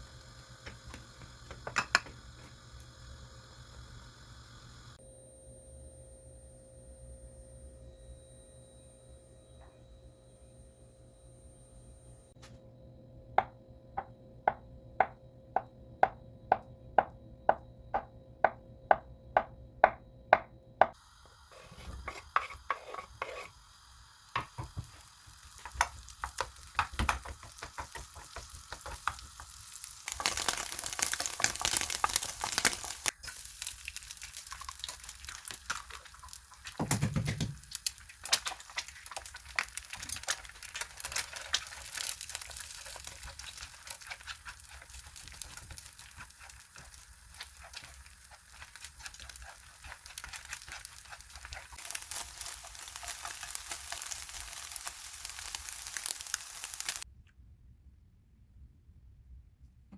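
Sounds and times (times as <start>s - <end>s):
food sizzling: 0.0s - 5.0s, 20.9s - 57.1s.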